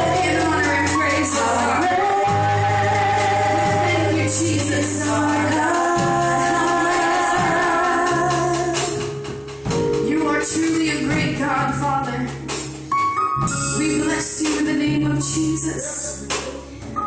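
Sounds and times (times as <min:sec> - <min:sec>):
voices singing: 0:00.0 - 0:08.8
bass and instrumental backing: 0:00.0 - 0:17.0.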